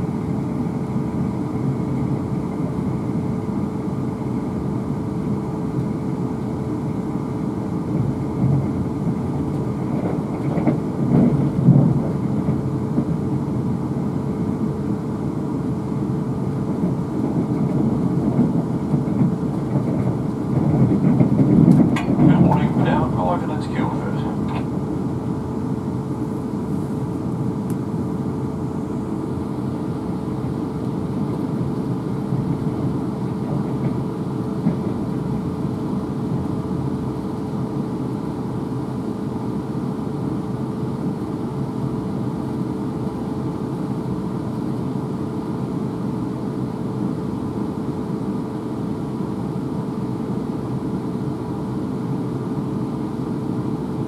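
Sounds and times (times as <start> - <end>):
train wheels rumbling on rails: 0.0 - 44.4
steady electric hum: 22.0 - 30.6.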